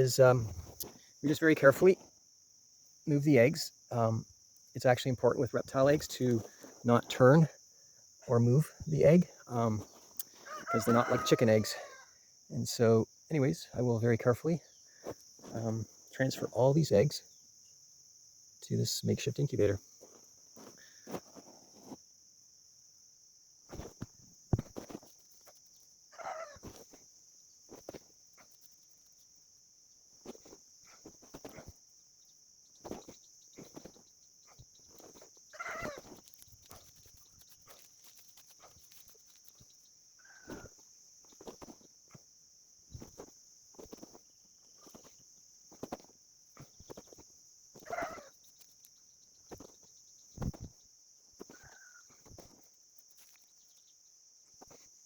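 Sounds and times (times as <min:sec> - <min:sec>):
high insect drone: 0:00.0 - 0:55.0
short bird calls: 0:32.9 - 0:36.2, 0:47.8 - 0:48.5.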